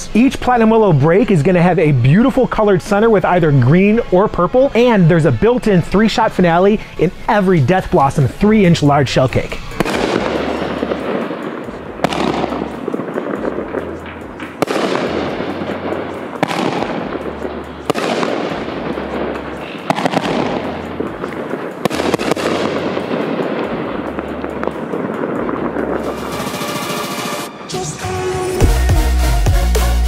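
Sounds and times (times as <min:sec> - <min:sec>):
crackling hiss of fireworks: 0:00.0 - 0:28.8
firework bangs: 0:05.4 - 0:27.9.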